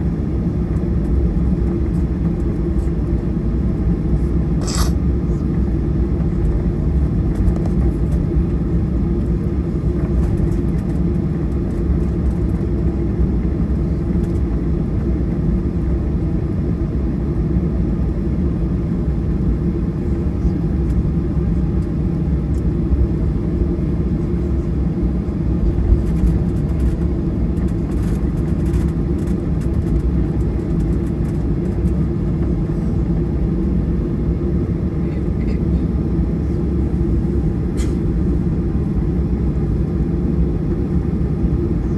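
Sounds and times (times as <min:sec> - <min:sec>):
jet engines rumbling in cabin: 0:00.0 - 0:41.9.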